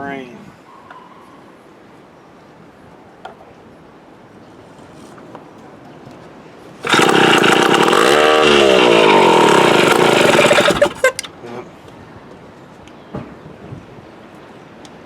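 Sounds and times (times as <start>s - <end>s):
chainsaw engine revving and sputtering: 6.8s - 11.3s.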